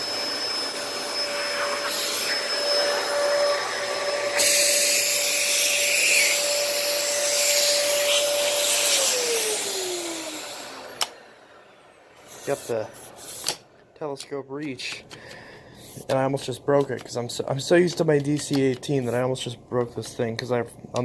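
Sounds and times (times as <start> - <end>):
vacuum motor whine: 0.0 - 12.6.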